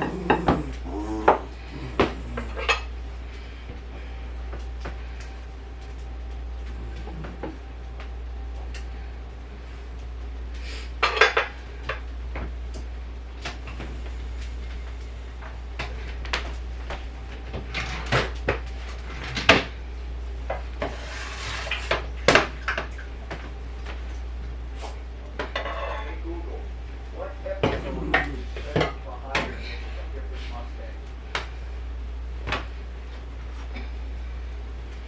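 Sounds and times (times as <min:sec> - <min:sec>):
dishes and cutlery clinking: 0:25.4 - 0:26.2.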